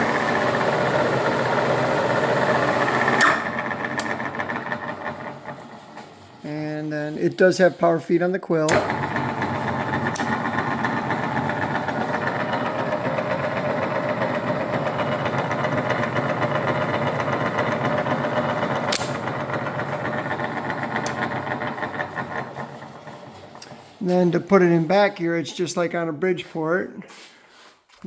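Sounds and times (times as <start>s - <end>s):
milling machine motor whir: 0.0s - 6.0s, 8.7s - 23.8s.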